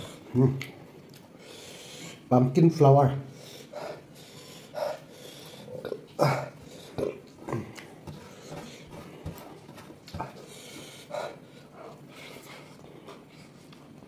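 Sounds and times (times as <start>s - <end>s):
man chewing and smacking: 0.6s - 1.3s.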